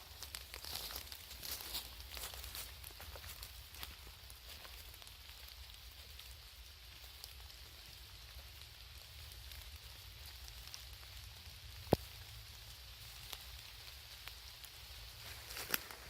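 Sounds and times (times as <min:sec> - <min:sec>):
rain hissing: 0:00.0 - 0:16.0
raindrop ticks: 0:09.4 - 0:16.0.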